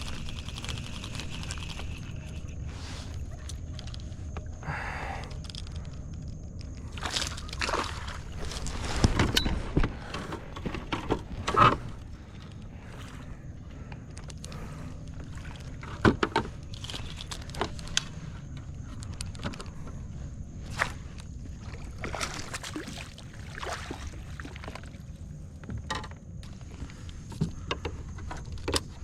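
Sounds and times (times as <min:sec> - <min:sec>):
knocks and scrapes on a kayak: 0:08.4 - 0:12.4.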